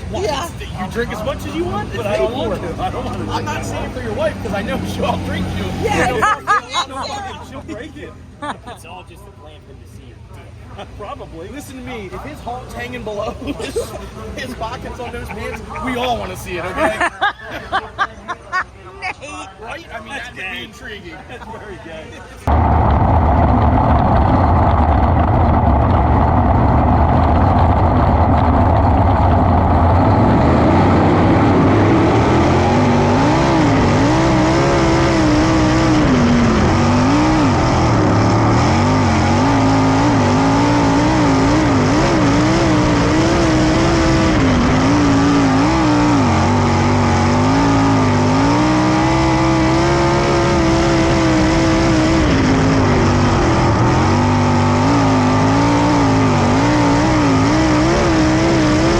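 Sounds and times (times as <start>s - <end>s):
race car engine revving: 0.0s - 7.6s, 22.4s - 58.9s.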